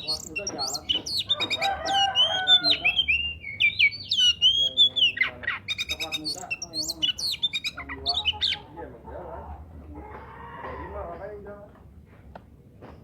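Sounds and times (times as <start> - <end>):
bird singing whistled notes: 0.0 - 8.6
bird chattering: 0.0 - 8.8.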